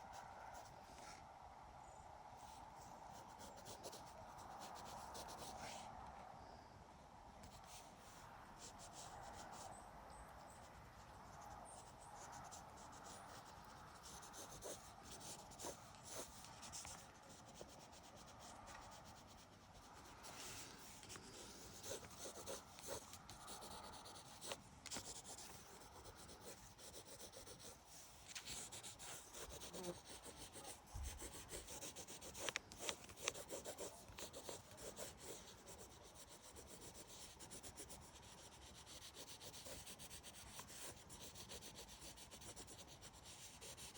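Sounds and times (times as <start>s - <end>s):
pencil scratching on paper: 3.1s - 5.9s, 10.4s - 43.9s.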